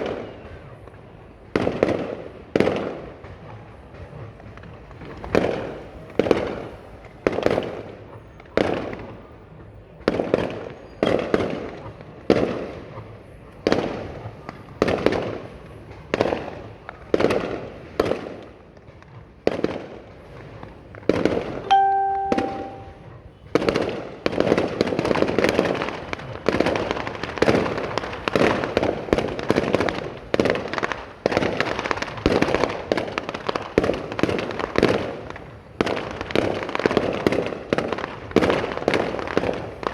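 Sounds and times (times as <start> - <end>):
fireworks bangs: 0.0 - 39.9
short steady tone: 21.7 - 23.0.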